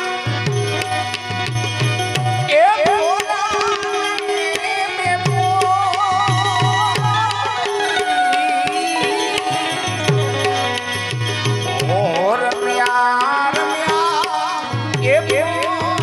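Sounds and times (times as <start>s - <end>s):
tabla rhythm: 0.0s - 16.0s.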